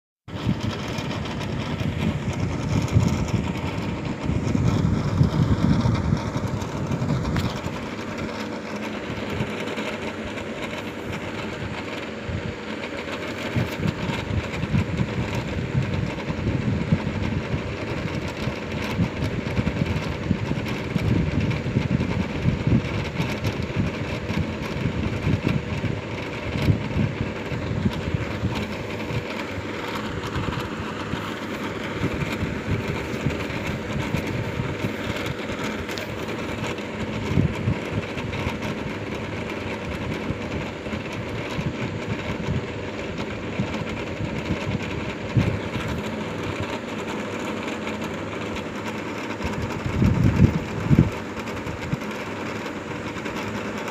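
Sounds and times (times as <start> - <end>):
mechanical hum: 0.2 - 53.9.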